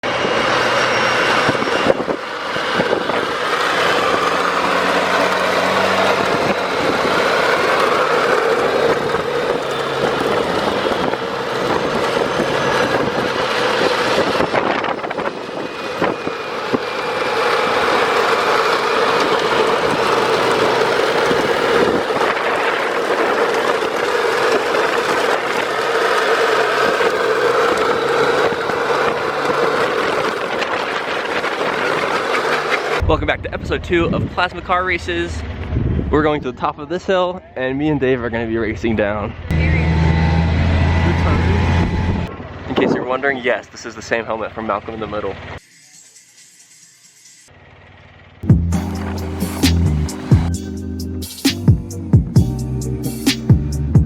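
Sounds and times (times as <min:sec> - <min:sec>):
plastic wheels rolling on pavement: 0:01.4 - 0:33.0.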